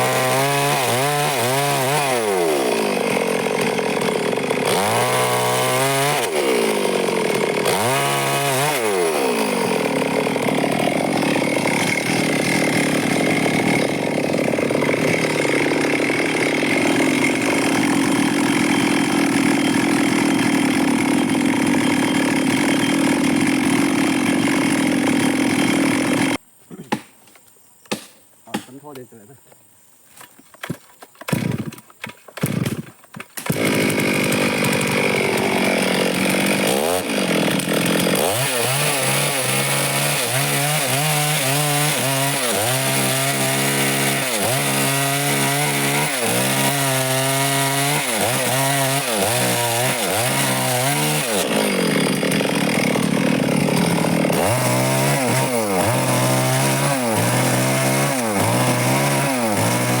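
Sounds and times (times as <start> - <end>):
chainsaw cutting wood: 0.0 - 29.0, 30.2 - 60.0
sharp knocks: 27.9 - 28.8.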